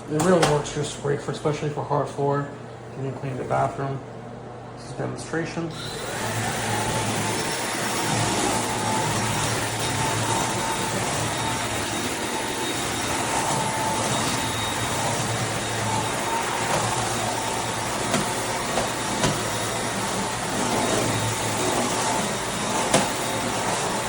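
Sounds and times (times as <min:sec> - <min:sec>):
stick vacuum whining: 0:05.7 - 0:24.0.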